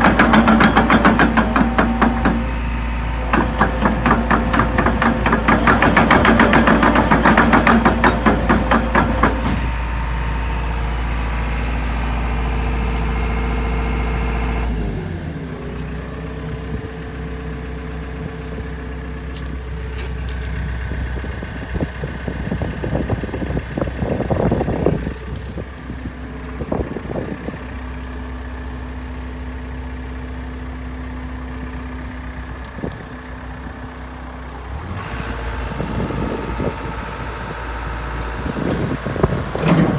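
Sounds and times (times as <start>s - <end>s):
rapid loud clattering: 0.0s - 2.6s, 3.3s - 9.7s
excavator diesel engine running: 0.0s - 39.9s.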